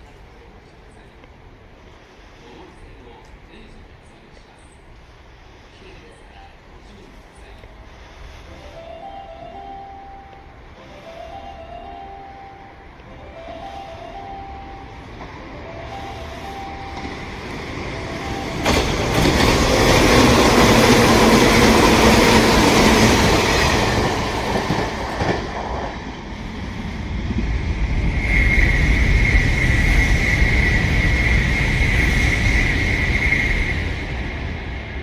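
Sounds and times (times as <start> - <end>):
train running rumble: 0.0 - 35.0
train wheels rushing past: 7.9 - 35.0
high squeal or whine: 27.8 - 35.0.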